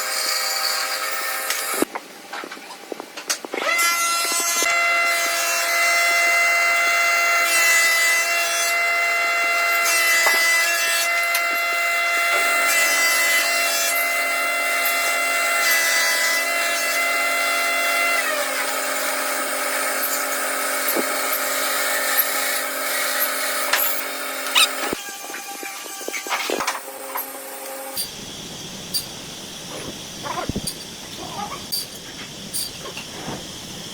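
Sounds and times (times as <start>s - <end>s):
saw cutting wood: 0.0s - 1.9s, 3.6s - 28.2s
power tool whining: 3.6s - 33.9s.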